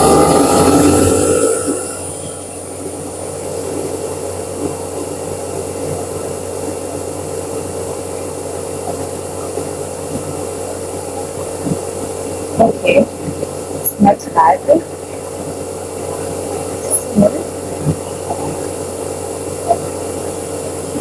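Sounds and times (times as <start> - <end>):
hair dryer blowing air: 0.0 - 2.1
low hum: 0.0 - 21.0.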